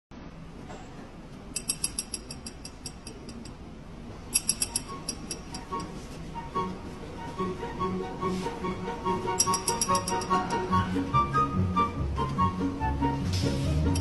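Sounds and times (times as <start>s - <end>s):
sharp metallic clicks with ringing: 1.6s - 3.6s, 4.3s - 5.9s, 9.4s - 10.6s.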